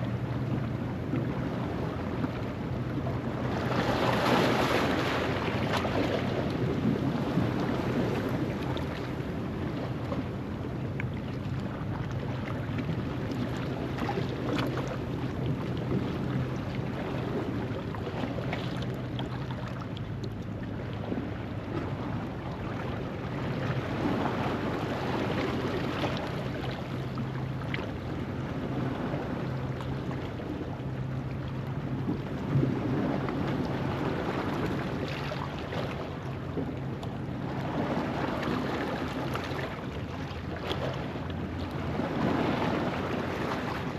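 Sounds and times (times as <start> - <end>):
wind rumbling on microphone: 0.0 - 43.9.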